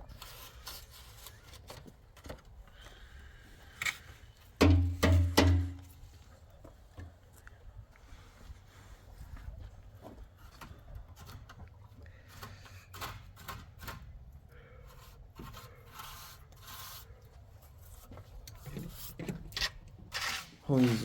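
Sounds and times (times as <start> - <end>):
belongings rubbing and scraping: 14.8 - 21.0.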